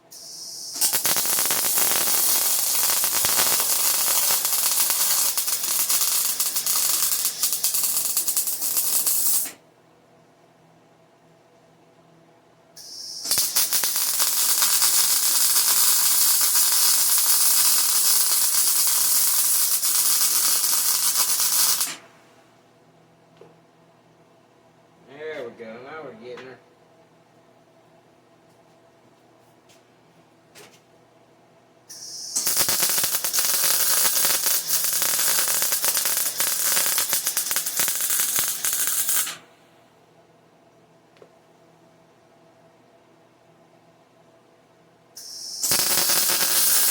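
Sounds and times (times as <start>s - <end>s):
welder crackling hiss: 0.1s - 9.6s, 12.8s - 22.0s, 31.9s - 39.4s, 45.2s - 46.9s.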